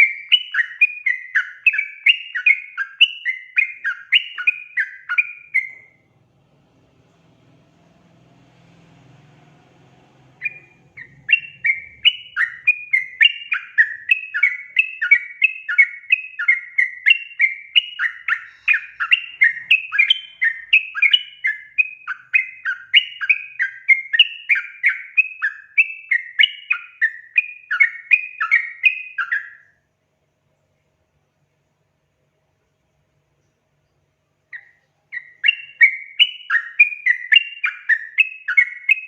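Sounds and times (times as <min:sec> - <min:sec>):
bird singing chattering phrases: 0:10.4 - 0:24.4.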